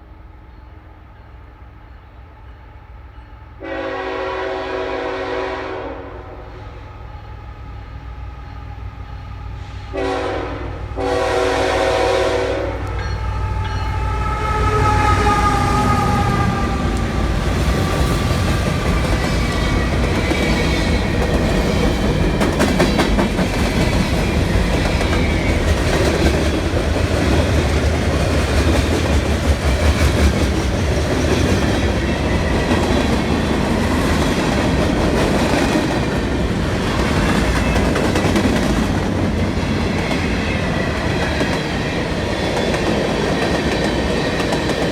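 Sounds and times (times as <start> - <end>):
freight train wheels rumbling: 0.0 - 44.9
train horn: 3.6 - 7.3, 9.6 - 18.4.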